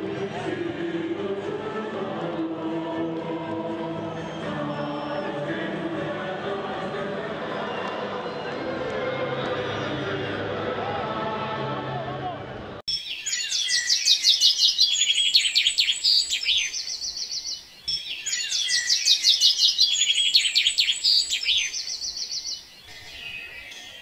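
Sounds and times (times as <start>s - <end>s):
bird chirps and trills: 12.9s - 24.0s.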